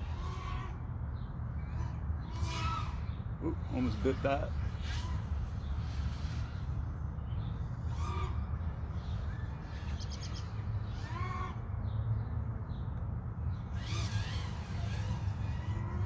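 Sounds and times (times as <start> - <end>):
bird arching cry: 0.0 - 6.6, 7.8 - 12.0.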